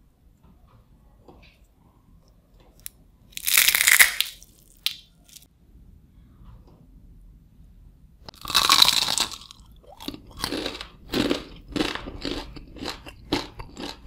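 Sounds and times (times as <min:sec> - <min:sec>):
crunching crisp snack: 0:03.4 - 0:05.5, 0:08.3 - 0:14.0.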